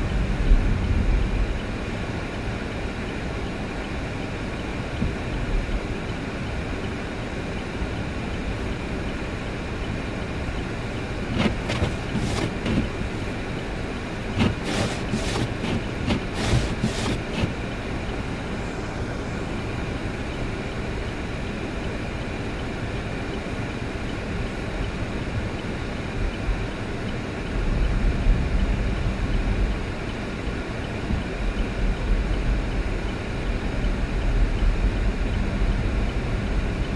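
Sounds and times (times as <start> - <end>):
vehicle driving rumble: 0.0 - 36.9.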